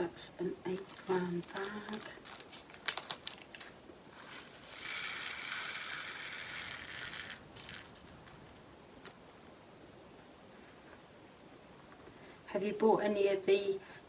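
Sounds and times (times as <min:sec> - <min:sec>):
resin beads pouring into pot: 0:00.8 - 0:03.0, 0:04.1 - 0:08.6.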